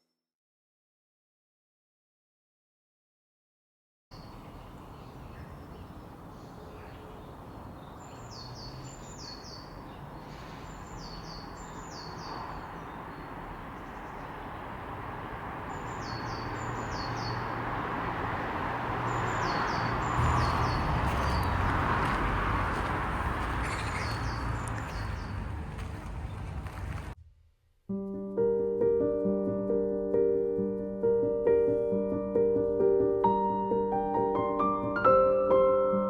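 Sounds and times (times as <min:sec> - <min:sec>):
songbird calling: 0:04.2 - 0:17.6, 0:19.0 - 0:22.3, 0:23.4 - 0:25.5
steady outdoor rush: 0:04.2 - 0:27.2
low rumble: 0:20.2 - 0:23.9.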